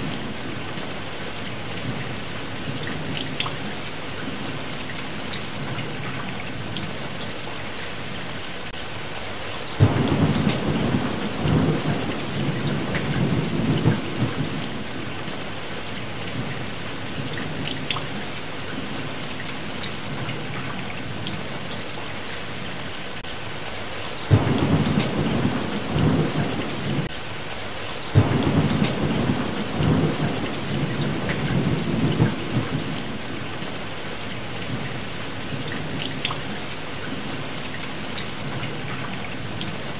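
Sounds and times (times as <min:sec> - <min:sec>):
steady rain: 0:00.0 - 0:39.9
thunder claps rumbling: 0:09.8 - 0:14.9, 0:24.3 - 0:27.1, 0:28.2 - 0:33.6.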